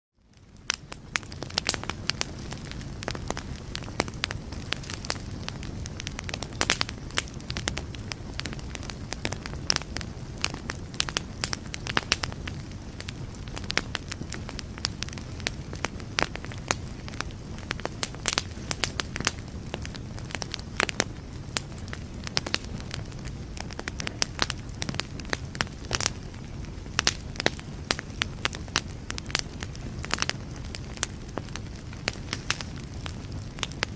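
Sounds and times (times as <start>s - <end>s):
firewood crackling and popping: 0.2s - 33.9s
low rumble of flames: 0.2s - 33.9s.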